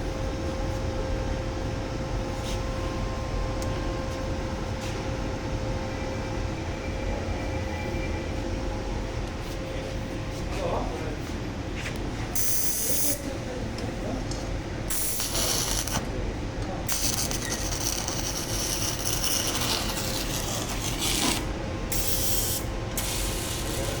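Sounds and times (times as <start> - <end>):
steady hum: 0.0 - 24.0
welding arc hissing and crackling: 12.4 - 13.2, 14.9 - 16.0, 16.9 - 24.0.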